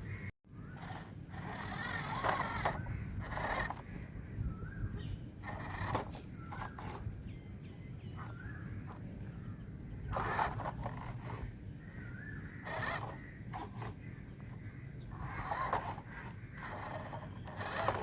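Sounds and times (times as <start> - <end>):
harsh bird calls: 2.7 - 10.8, 11.8 - 18.0
small rising bird chirps: 5.9 - 10.6, 11.8 - 18.0.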